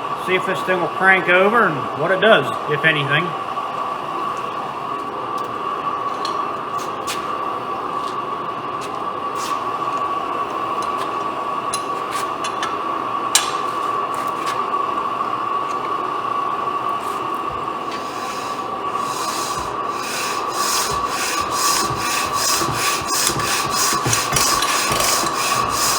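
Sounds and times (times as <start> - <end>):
burner flame roaring: 14.7 - 25.9.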